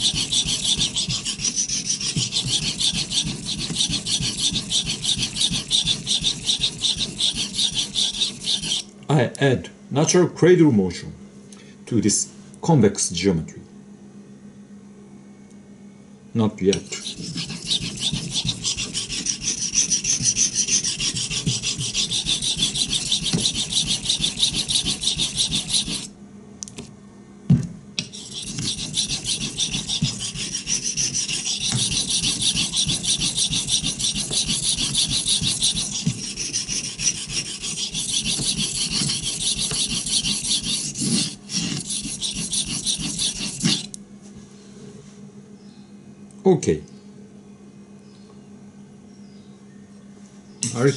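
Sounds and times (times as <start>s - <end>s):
knife scraping on whetstone: 0.0s - 8.8s, 16.7s - 26.1s, 28.0s - 44.0s.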